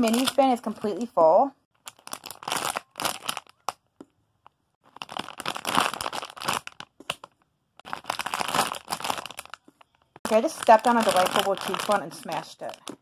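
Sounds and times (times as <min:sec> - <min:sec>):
plastic crinkling and rustling: 0:00.0 - 0:01.1, 0:01.8 - 0:03.8, 0:04.8 - 0:13.0.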